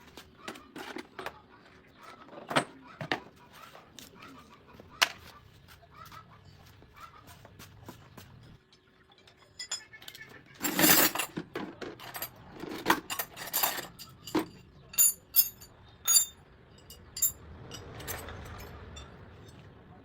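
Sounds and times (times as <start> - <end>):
metal clanking and scraping: 0.4 - 3.3, 8.4 - 19.8
ringing metallic clinks: 9.2 - 11.3, 13.0 - 19.8.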